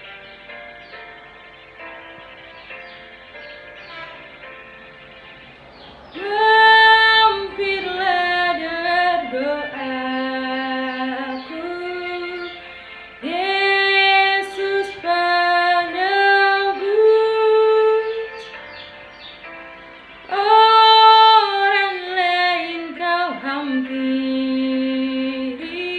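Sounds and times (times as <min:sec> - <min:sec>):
woman singing: 0:06.2 - 0:18.6, 0:20.3 - 0:25.9.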